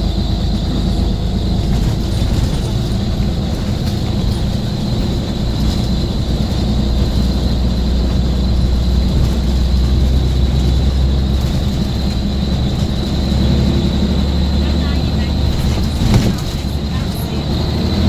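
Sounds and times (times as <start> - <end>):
bus diesel engine rumble: 0.0 - 18.0.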